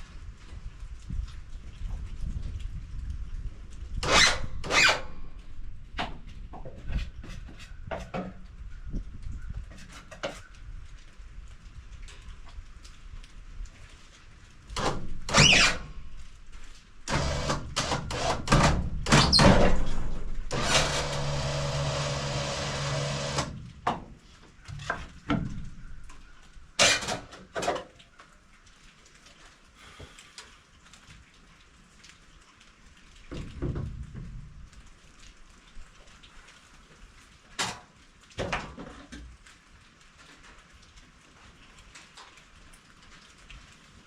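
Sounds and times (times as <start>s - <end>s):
metal and wood clanking: 17.1s - 24.1s, 26.8s - 27.9s
machine running: 20.5s - 23.5s.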